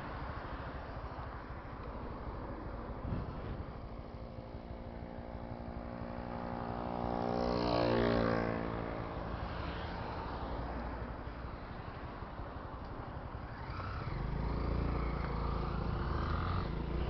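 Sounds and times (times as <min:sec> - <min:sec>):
road noise: 0:00.0 - 0:17.0
vehicle passing by: 0:06.0 - 0:11.1, 0:13.4 - 0:17.0.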